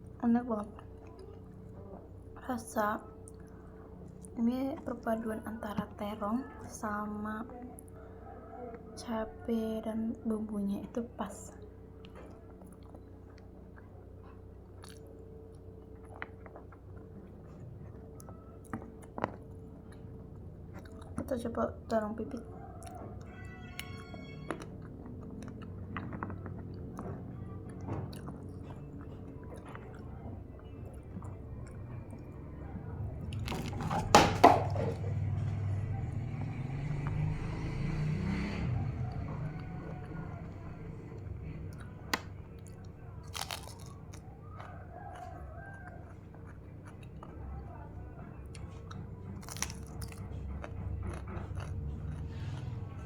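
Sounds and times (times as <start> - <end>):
faint steady hum: 0.0 - 37.8
person chewing crunchy food: 11.8 - 21.3, 22.3 - 32.4, 33.2 - 35.2, 41.2 - 47.5, 48.2 - 53.0
crisp crunches: 33.4 - 34.2, 43.2 - 44.2, 49.4 - 50.2.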